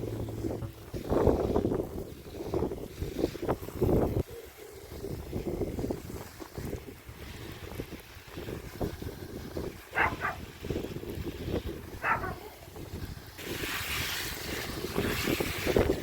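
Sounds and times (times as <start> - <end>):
wind buffeting microphone: 0.0 - 16.0
hiss: 11.3 - 16.0.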